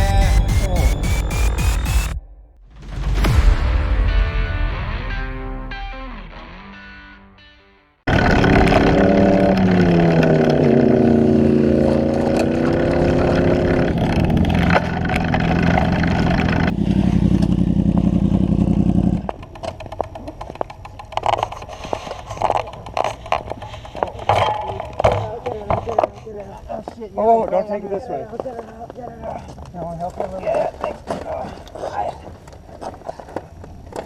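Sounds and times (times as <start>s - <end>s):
motorcycle engine revving: 8.1s - 20.0s.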